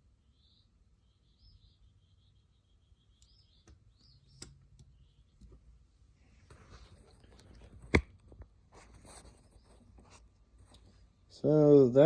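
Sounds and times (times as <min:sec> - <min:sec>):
faint bird chirps: 0:00.0 - 0:07.6, 0:09.2 - 0:10.0.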